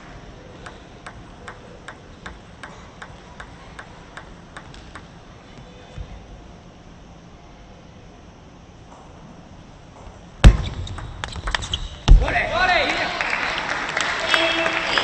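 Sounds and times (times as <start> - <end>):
table tennis ball clicking: 0.6 - 5.2
low thump: 10.4 - 11.5.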